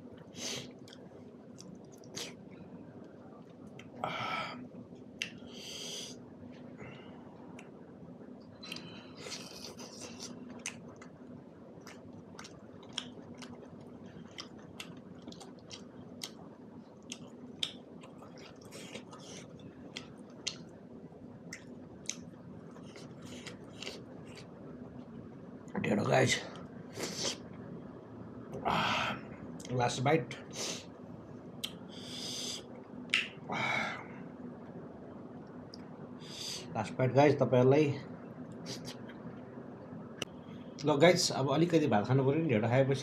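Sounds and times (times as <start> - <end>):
faint low hum: 0.0 - 43.0
person chewing food: 0.2 - 2.4, 8.6 - 20.7, 21.4 - 25.1
wet mouth smacks and clicks: 11.8 - 13.6, 17.1 - 19.2, 20.0 - 20.7, 31.6 - 31.8, 33.1 - 33.4.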